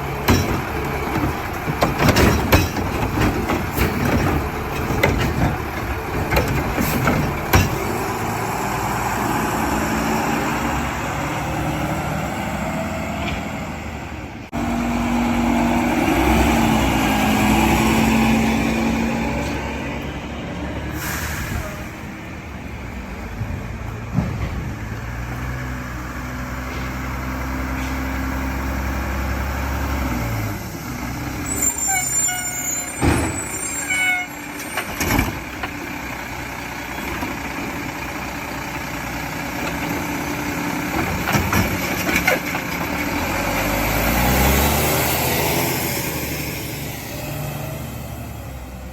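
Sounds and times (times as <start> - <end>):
diesel truck engine revving: 0.0 - 48.9
squeals: 31.4 - 35.0.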